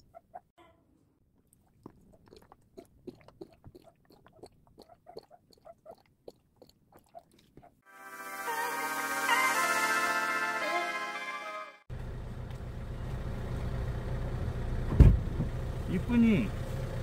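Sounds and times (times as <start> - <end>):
faint chewing and crunching: 1.3 - 7.8.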